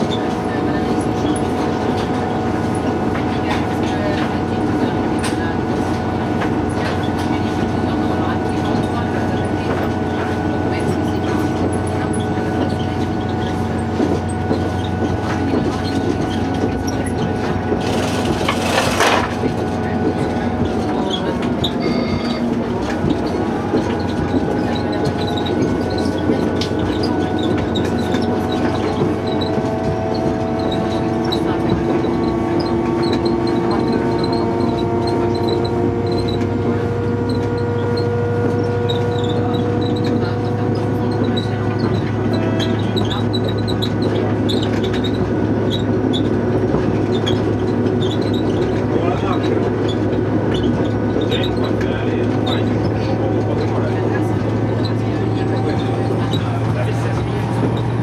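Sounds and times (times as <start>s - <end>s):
train wheels rumbling on rail: 0.0s - 58.0s
short high squeaks: 21.0s - 22.5s.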